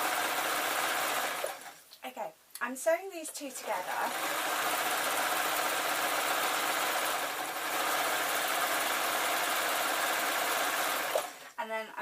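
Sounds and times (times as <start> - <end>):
electric sewing machine running: 0.0 - 1.7, 3.5 - 11.4.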